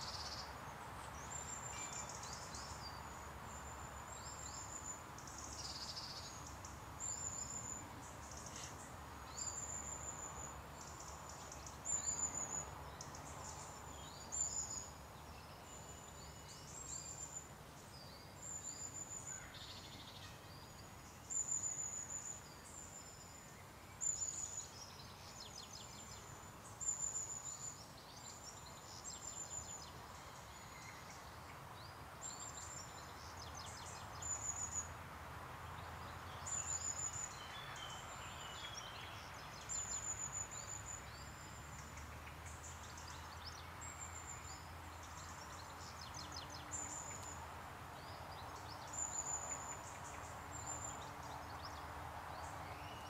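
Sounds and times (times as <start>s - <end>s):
songbird singing high phrase: 52.5s - 53.0s.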